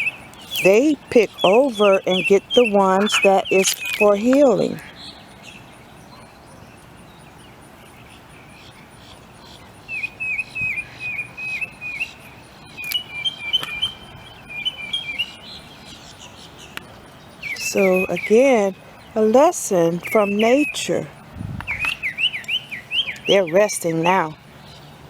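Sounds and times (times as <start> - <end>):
two-pitched bird twittering: 0.0 - 5.2, 9.5 - 16.8, 17.4 - 21.0, 21.6 - 24.3
songbird chirping: 0.0 - 25.0.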